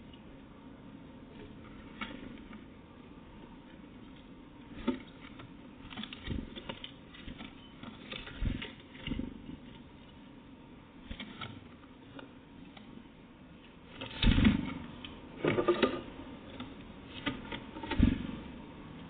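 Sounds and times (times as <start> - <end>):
small animal tapping and pecking: 4.0 - 10.2.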